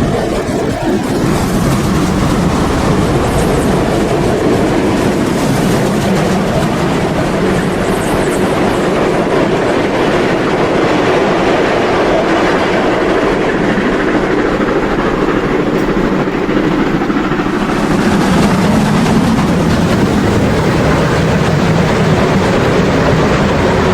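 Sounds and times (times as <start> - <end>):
small wheels clattering on rail: 0.0 - 23.9.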